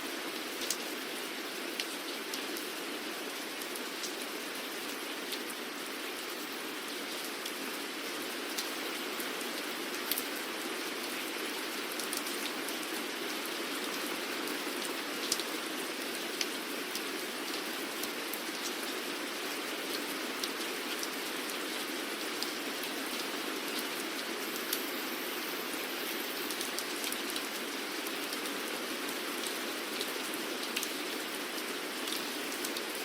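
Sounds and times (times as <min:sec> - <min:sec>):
raindrops ticking on a surface: 0:00.2 - 0:33.0
rain hissing: 0:23.9 - 0:28.1.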